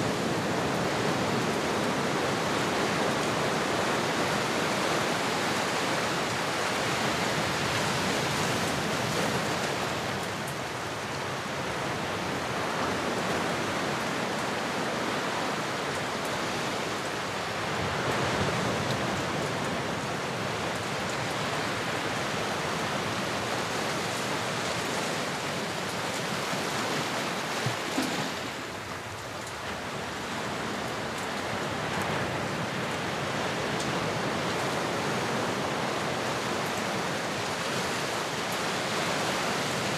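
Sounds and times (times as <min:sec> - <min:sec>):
ocean waves surf: 0:00.0 - 0:39.9.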